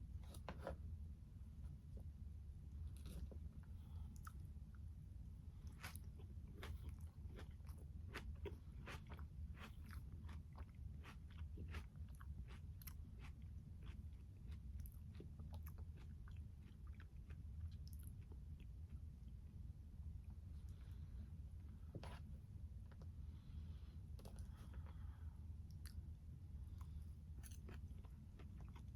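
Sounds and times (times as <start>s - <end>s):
steady low hum: 0.0s - 28.9s
person chewing wetly: 5.6s - 19.4s, 26.8s - 28.9s.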